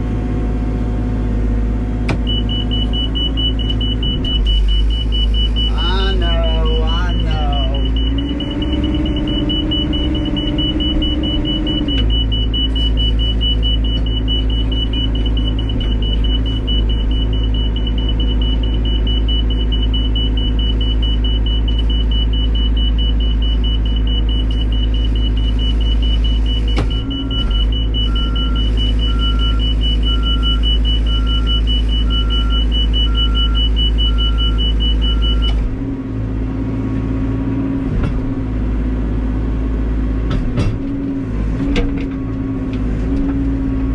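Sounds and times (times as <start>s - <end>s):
diesel engine running under load: 0.0s - 43.9s
repeating beep: 2.2s - 35.6s.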